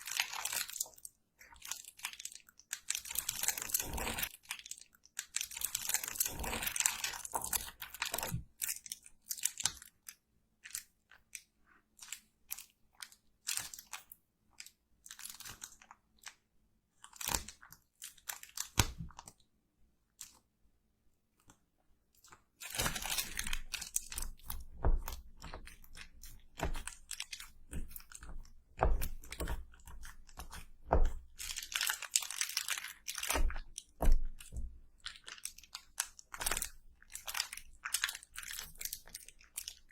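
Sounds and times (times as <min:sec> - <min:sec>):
close crunching and crackling: 0:22.2 - 0:39.9.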